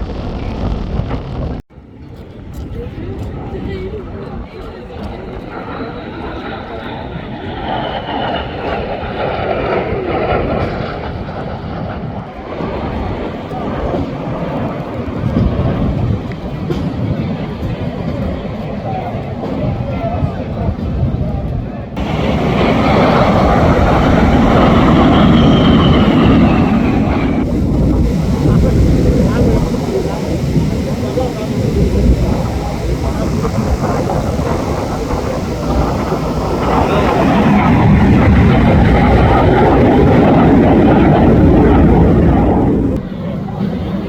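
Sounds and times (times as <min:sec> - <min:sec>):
aircraft engine flying past: 0:22.0 - 0:44.0.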